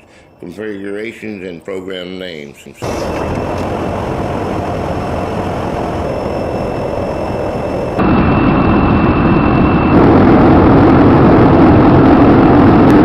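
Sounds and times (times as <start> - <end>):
jet engines roaring: 2.8 - 13.0
thin high whine: 2.8 - 13.0.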